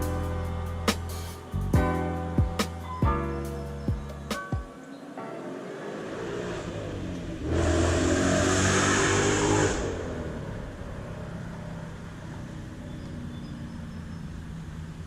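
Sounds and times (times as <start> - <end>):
car driving past: 4.8 - 15.0.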